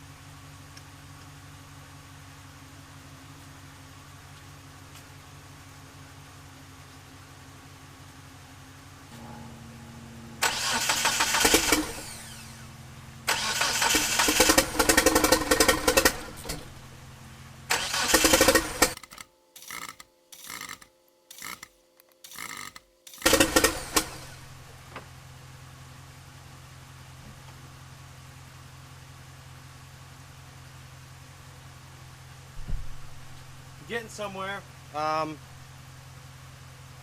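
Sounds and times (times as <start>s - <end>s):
steady low hum: 3.7s - 28.1s
engine starter cranking: 10.4s - 12.7s, 13.3s - 16.8s, 17.7s - 24.6s.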